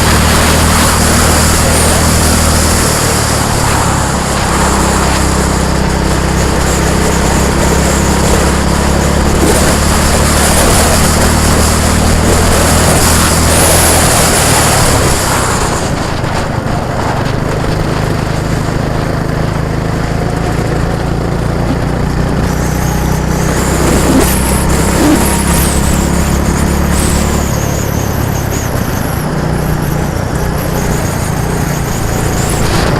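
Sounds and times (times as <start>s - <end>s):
engine running steadily: 0.0s - 32.9s
loud rushing noise: 0.0s - 32.9s.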